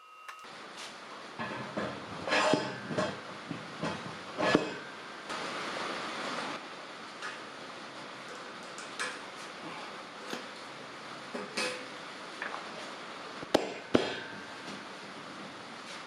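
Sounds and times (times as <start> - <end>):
ringing metallic knocks: 0.0 - 0.5.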